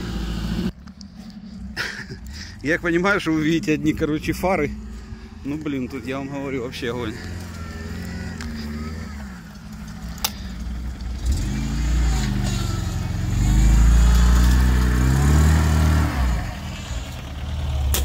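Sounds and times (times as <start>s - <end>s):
off-road engine revving in mud: 0.0s - 3.2s, 3.8s - 18.0s.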